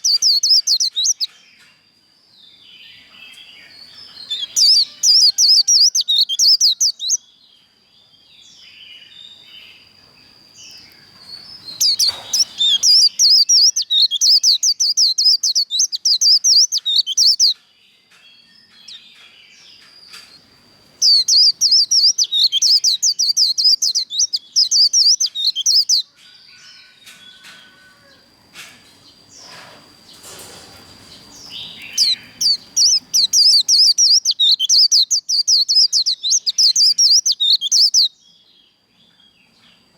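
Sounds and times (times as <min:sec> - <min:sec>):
bird singing rapid chattering song: 0:00.0 - 0:01.6, 0:02.4 - 0:26.2, 0:29.0 - 0:39.9
scattered bird chirps: 0:00.0 - 0:01.7, 0:03.0 - 0:07.3, 0:10.6 - 0:17.6, 0:21.0 - 0:38.2.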